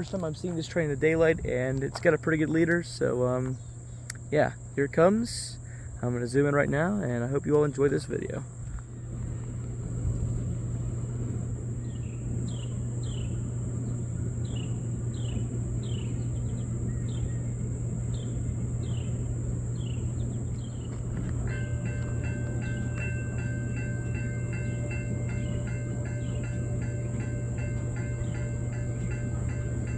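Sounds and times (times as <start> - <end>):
freight train rumbling: 8.8 - 29.9
high falling chirps: 9.6 - 29.9
crossing warning bell ringing: 21.0 - 29.9.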